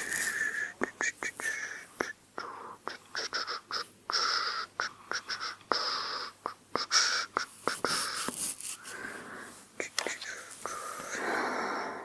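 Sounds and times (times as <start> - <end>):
scratchy rubbing through hair: 7.6 - 8.9.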